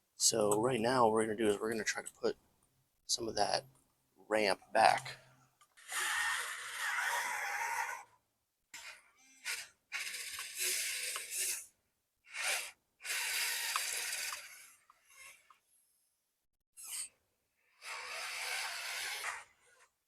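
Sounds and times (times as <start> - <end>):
small electric motors whirring: 5.8 - 8.2, 8.8 - 15.7, 16.8 - 17.1, 17.7 - 20.0.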